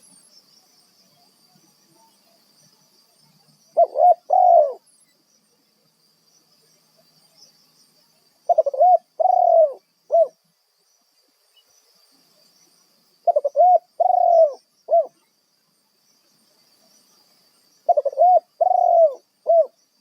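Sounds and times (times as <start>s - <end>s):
dove cooing: 3.8s - 4.8s, 8.5s - 10.4s, 13.2s - 15.1s, 17.9s - 19.8s.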